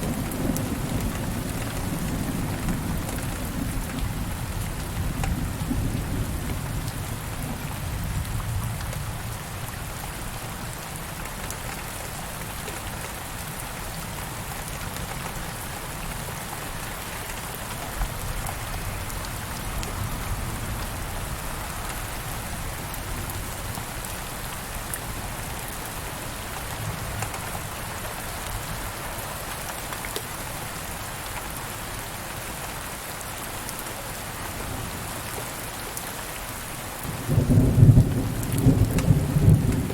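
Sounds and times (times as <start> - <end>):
rain drops ticking: 0.0 - 39.9
steady rain falling: 0.0 - 39.9
distant thunder rumble: 37.1 - 39.9.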